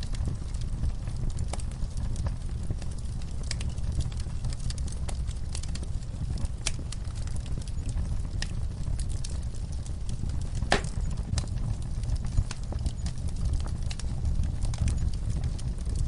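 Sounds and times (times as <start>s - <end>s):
log fire crackling and popping: 0.0s - 16.0s.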